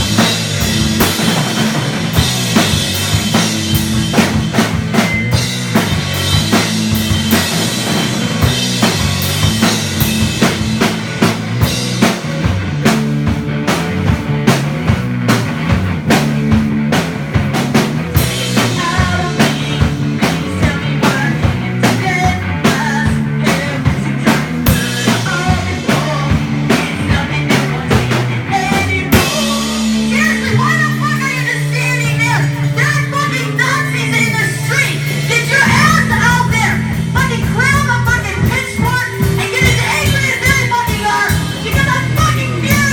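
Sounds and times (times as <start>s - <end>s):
bass line: 0.0s - 42.9s
drum kit beat: 0.0s - 42.9s
higher melody: 35.6s - 38.0s.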